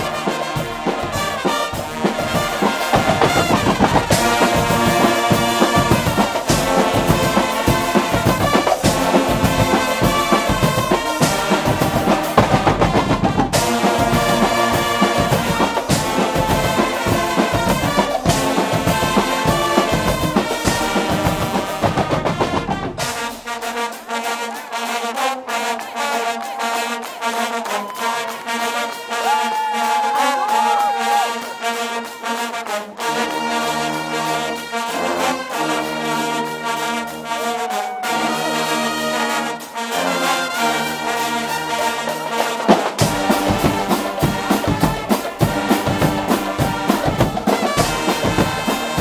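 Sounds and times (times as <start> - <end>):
bass drum beat: 0.0 - 23.3, 43.0 - 49.0
brass band playing: 0.0 - 49.0.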